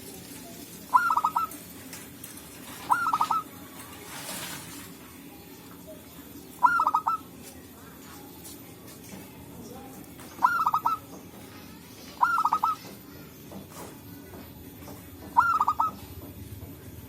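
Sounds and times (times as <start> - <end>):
low background hum: 0.0 - 17.0
dove cooing: 0.7 - 1.8, 2.6 - 4.8, 6.5 - 7.3, 10.3 - 11.2, 12.1 - 13.0, 15.2 - 16.3.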